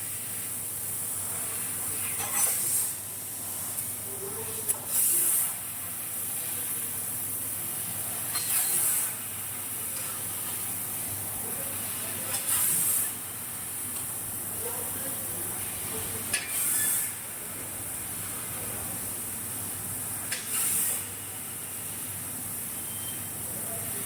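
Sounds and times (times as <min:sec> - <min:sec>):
laser cutter gas hissing: 0:00.0 - 0:24.0
loud rush of hiss: 0:12.0 - 0:13.2, 0:20.3 - 0:22.6.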